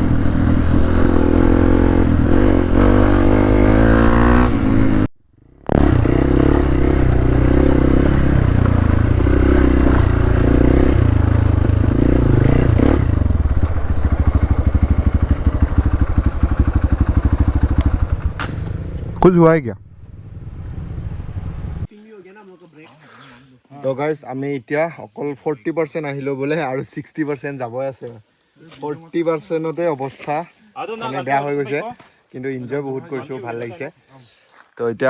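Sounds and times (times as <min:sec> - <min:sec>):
motorcycle engine revving: 0:00.0 - 0:21.9.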